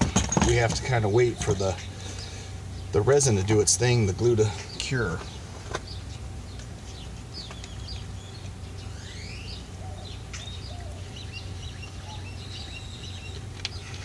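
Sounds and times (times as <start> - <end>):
birds chirping and calling: 0.0 - 14.0
steady low hum: 0.0 - 14.0
short rising whistles: 8.9 - 9.6.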